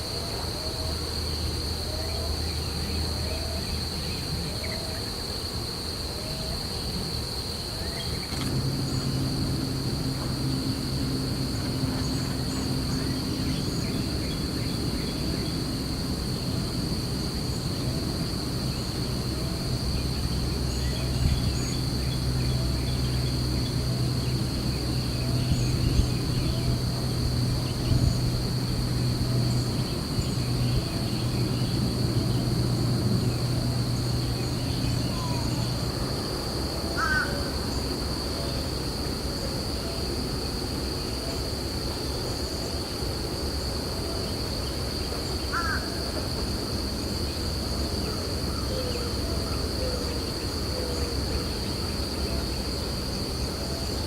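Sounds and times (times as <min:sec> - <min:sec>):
high insect drone: 0:00.0 - 0:54.0
low hum: 0:08.2 - 0:36.6.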